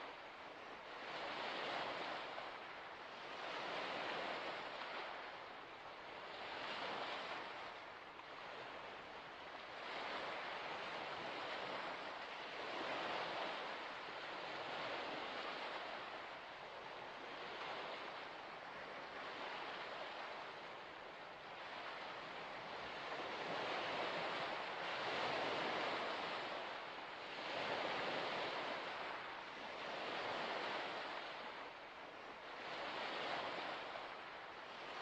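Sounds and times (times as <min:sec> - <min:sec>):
waves washing against shore: 0:09.6 - 0:35.0.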